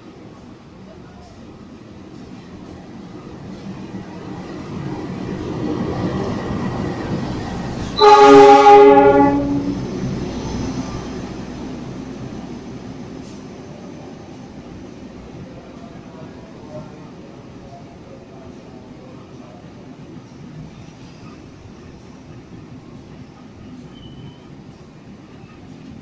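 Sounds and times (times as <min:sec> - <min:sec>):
loud train horn blast: 0:08.0 - 0:09.8.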